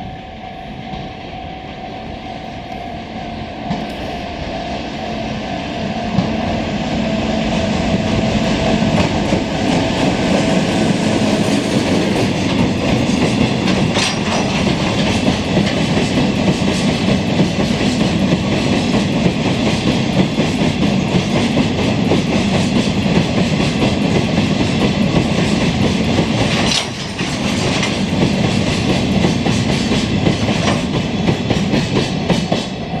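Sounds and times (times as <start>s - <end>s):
freight train wagons rumbling: 0.0s - 33.0s
wheels clattering over rail joints: 8.8s - 17.0s, 26.2s - 32.0s.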